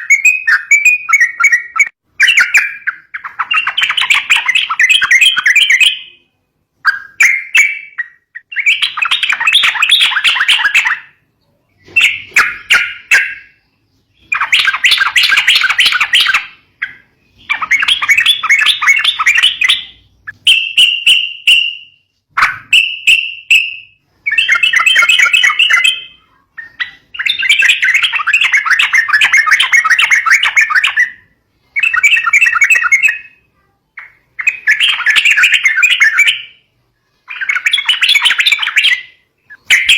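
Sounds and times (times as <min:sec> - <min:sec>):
bird bubbly chattering: 0:14.2 - 0:20.4, 0:24.2 - 0:33.4, 0:37.3 - 0:39.9.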